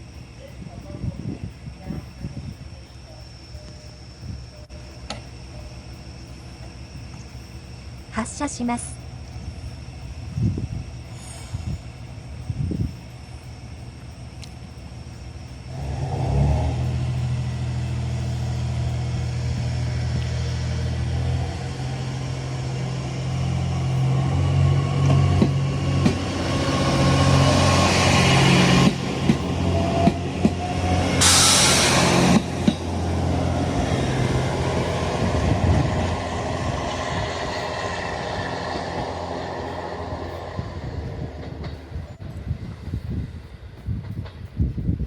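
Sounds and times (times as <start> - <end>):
diesel train engine droning: 0.0 - 45.0
loud hiss: 7.5 - 24.9, 25.6 - 42.0
wheels clacking over rail joints: 13.1 - 42.4.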